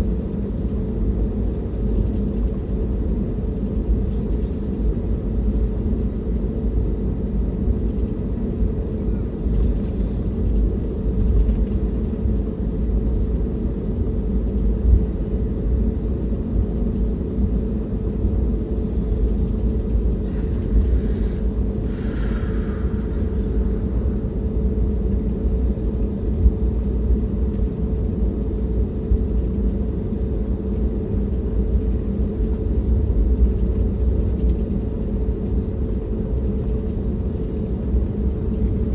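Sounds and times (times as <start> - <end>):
low hum: 7.7 - 38.9
aircraft engines idling: 17.0 - 38.9.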